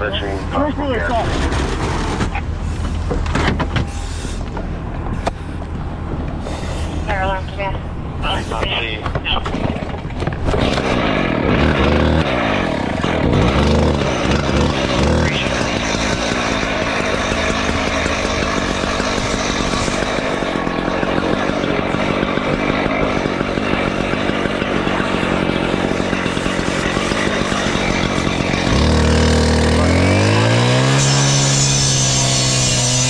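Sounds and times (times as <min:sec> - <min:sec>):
diesel engine rattling rumble: 0:00.0 - 0:33.0.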